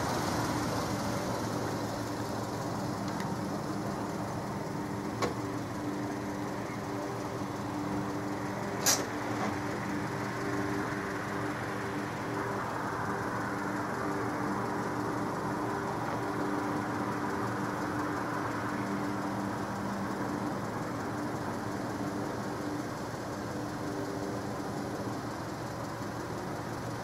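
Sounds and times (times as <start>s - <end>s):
car engine idling: 0.0s - 27.0s
sharp click: 8.8s - 9.1s.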